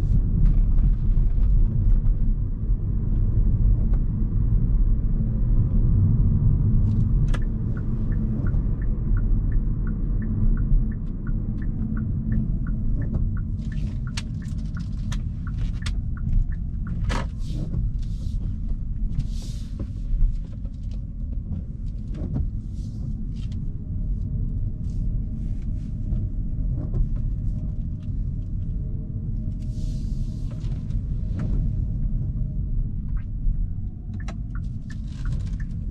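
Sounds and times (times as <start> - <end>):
road and drivetrain rumble: 0.0 - 35.9
turn signal ticking: 7.1 - 19.3, 33.1 - 35.9.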